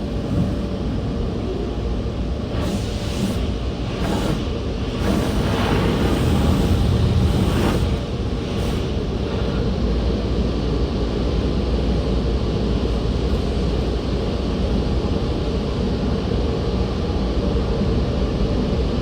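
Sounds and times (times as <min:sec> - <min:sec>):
car wash machinery rushing: 0:00.0 - 0:11.2.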